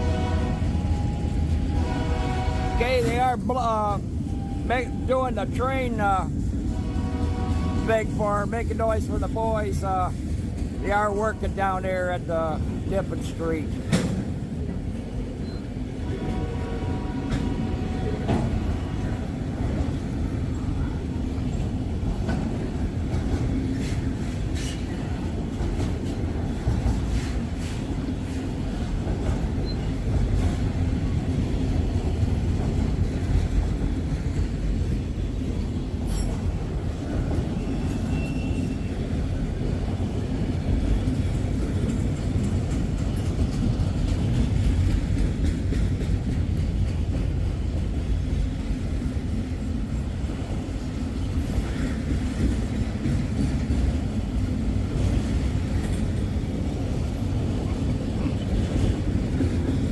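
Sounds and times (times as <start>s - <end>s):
train wheels rumbling on rail: 0.0s - 59.9s
high-pitched wheel squeals: 37.6s - 39.0s.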